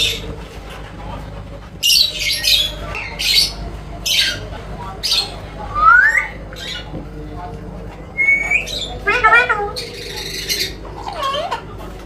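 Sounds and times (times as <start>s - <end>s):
parrot squawking: 5.0s - 6.9s, 8.2s - 11.7s.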